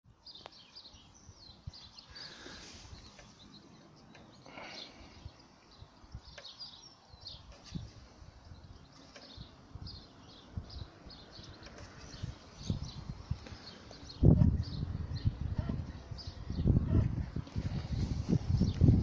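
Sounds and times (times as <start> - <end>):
small birds chirping: 0.1 - 19.0.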